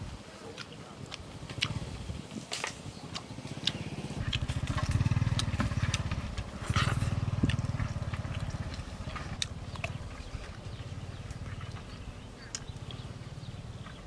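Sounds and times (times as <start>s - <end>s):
open-mouthed chewing and lip smacking: 0.4s - 14.0s
low pulsing engine drone: 3.3s - 14.0s.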